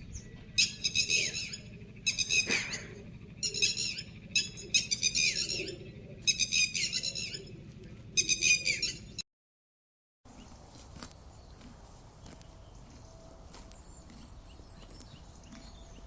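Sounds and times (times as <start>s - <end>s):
bird calling high-pitched: 0.0s - 9.2s
low background hum: 0.0s - 9.2s, 10.3s - 16.0s.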